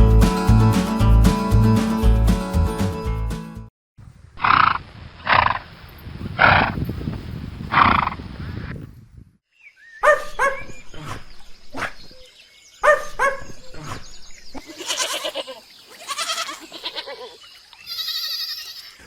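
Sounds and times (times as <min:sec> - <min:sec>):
goats bleating: 0:14.6 - 0:19.0.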